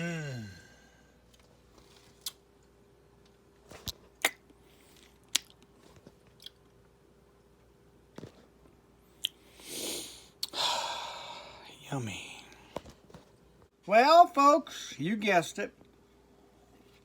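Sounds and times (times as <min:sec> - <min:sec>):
faint steady hum: 0:00.0 - 0:17.0
person chewing crunchy snack: 0:04.2 - 0:06.7.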